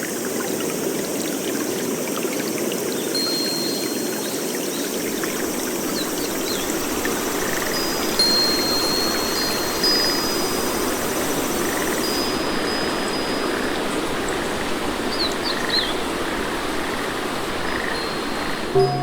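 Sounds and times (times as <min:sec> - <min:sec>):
rain hiss: 0:00.0 - 0:19.0
thin high tone: 0:18.7 - 0:19.0.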